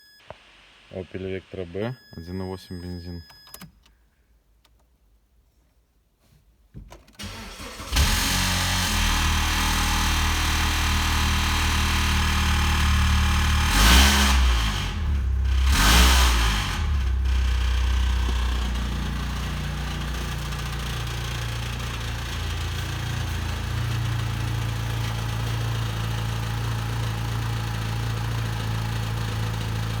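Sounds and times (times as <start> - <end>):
car engine idling and revving: 7.2 - 30.0.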